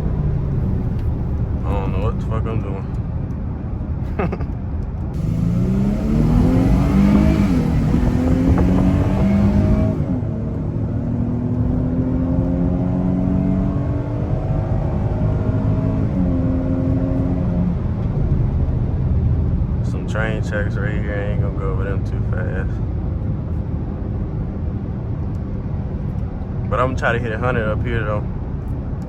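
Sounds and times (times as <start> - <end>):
car engine accelerating through gears: 5.2 - 20.0.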